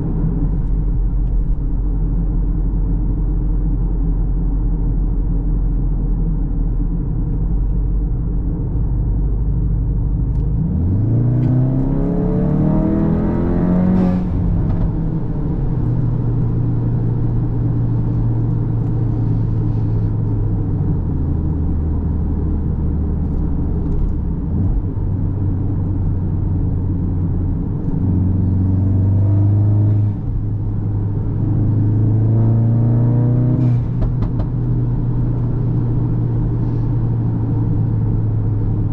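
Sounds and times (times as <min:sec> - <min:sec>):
car engine revving: 0:10.3 - 0:20.0, 0:21.7 - 0:38.9.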